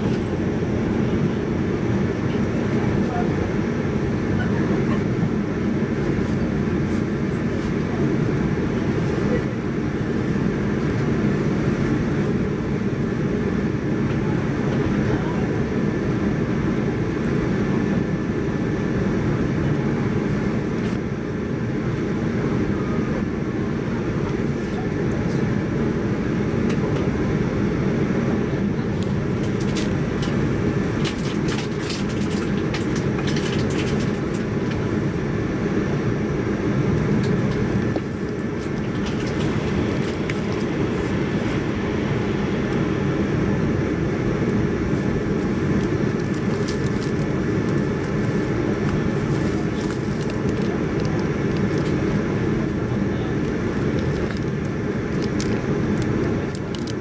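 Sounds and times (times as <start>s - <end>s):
train wheels rumbling on rail: 28.6s - 57.0s
sharp clicks and rattles: 29.3s - 34.8s, 37.2s - 40.6s, 53.4s - 57.0s.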